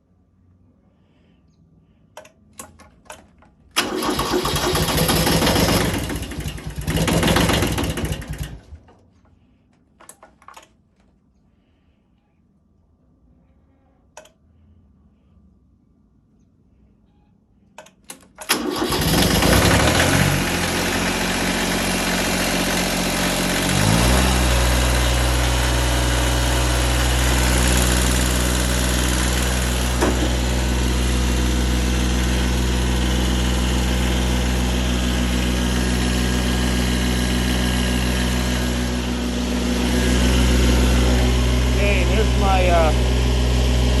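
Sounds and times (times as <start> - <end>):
clicks: 2.1 - 3.6, 14.1 - 14.4, 17.6 - 18.5
diesel engine cranking and idling: 3.7 - 9.0, 18.4 - 44.0.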